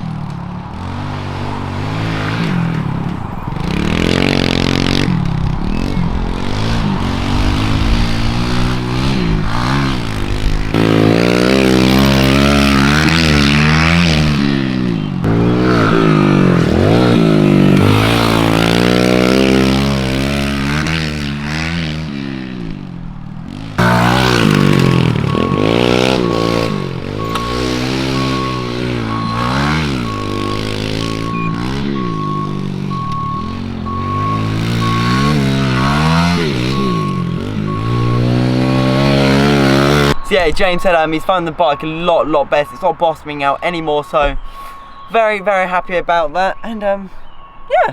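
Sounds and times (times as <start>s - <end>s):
small motorbike engine revving: 3.6s - 40.2s.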